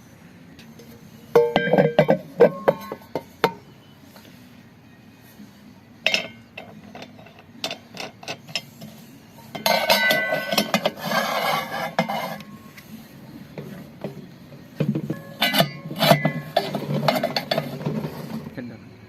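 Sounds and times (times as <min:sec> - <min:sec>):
metallic rattling and scraping: 0:00.8 - 0:04.3, 0:06.0 - 0:18.6
metal tools tapping on metal: 0:01.3 - 0:03.6, 0:06.0 - 0:08.9, 0:09.5 - 0:12.6, 0:14.8 - 0:18.1.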